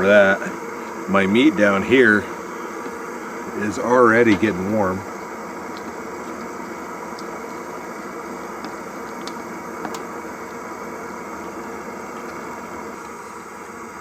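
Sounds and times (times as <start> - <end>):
propane burners hissing: 0.0 - 14.0
faint ticks: 5.2 - 10.6.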